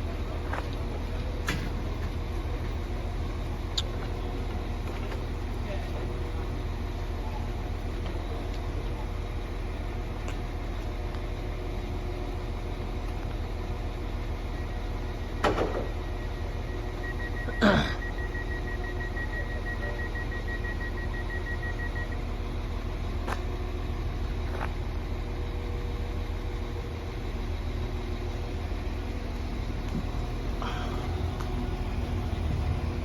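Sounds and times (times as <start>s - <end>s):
diesel train engine idling: 0.0s - 33.0s
rapid high beeping: 15.9s - 22.2s.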